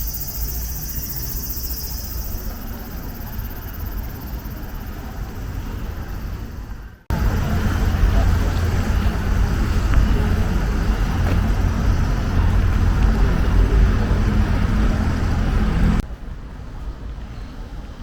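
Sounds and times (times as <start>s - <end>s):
low rumble of road traffic: 0.0s - 18.0s.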